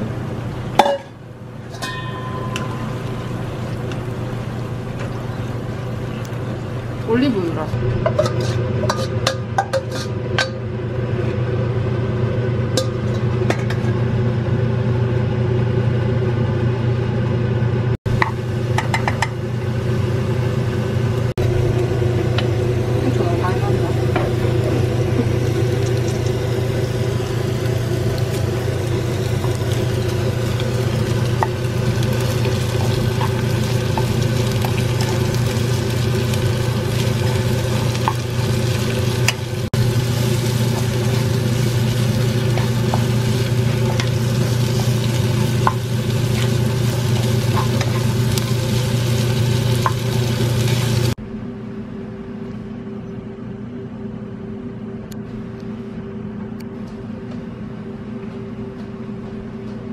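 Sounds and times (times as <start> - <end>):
steady low hum: 0.0 - 59.9
food sizzling in oil: 18.1 - 51.2.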